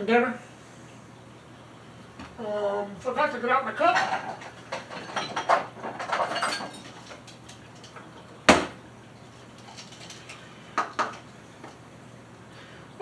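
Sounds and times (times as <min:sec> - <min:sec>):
clattering and knocking in a kitchen: 0:03.0 - 0:11.8.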